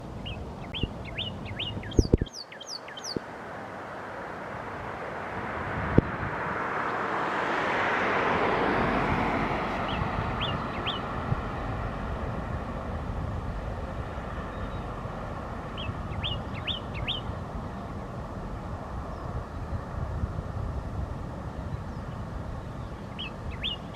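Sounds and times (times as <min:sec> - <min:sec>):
songbird chirping: 0:00.0 - 0:03.6, 0:09.8 - 0:11.2, 0:14.3 - 0:18.1, 0:21.6 - 0:23.9
vehicle passing: 0:03.2 - 0:23.9.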